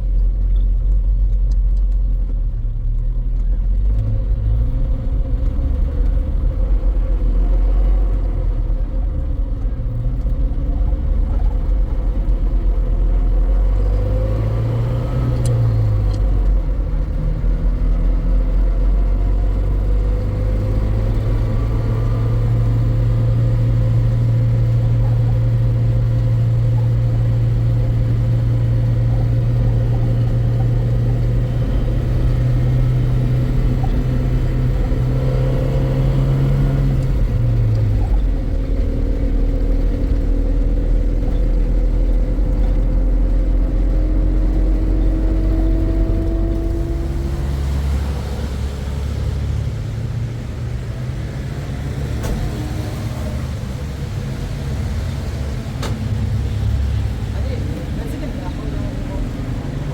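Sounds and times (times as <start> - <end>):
vehicle engine rumbling: 0.0 - 59.9.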